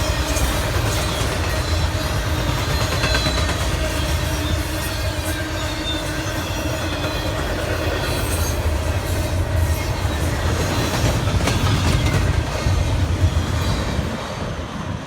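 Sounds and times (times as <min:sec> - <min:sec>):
train wheels rumbling on rail: 0:00.0 - 0:15.0
wheels clacking over rail joints: 0:05.9 - 0:14.2.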